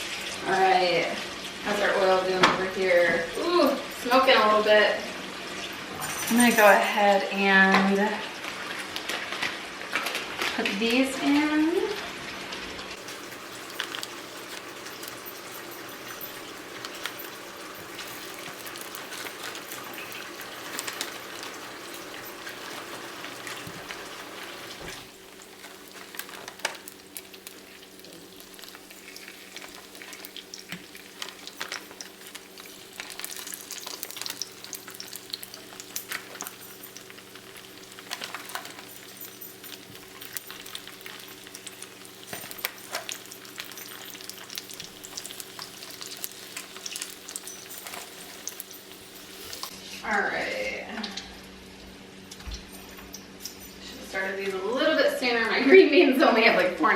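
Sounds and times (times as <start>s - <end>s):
food sizzling in hot oil: 0.0s - 49.8s
oil crackling and popping: 8.4s - 10.8s, 12.5s - 49.8s.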